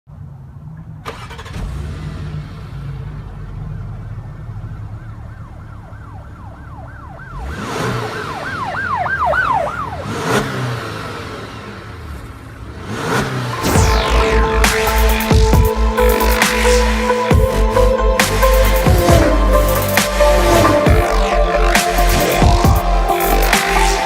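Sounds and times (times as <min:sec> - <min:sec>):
low vehicle rumble: 0:00.1 - 0:07.4, 0:13.6 - 0:24.0
rising and falling siren wail: 0:04.1 - 0:10.8, 0:13.5 - 0:24.0
whoosh: 0:13.5 - 0:24.0
sharp hit: 0:13.6 - 0:24.0.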